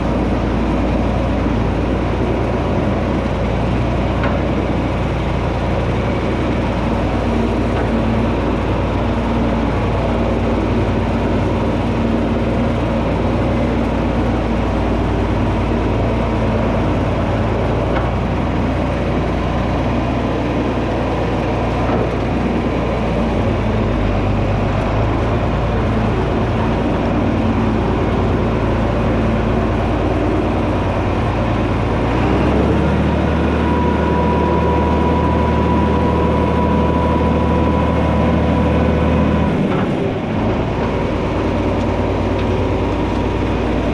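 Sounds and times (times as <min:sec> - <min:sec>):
tractor diesel engine running: 0:00.0 - 0:43.9.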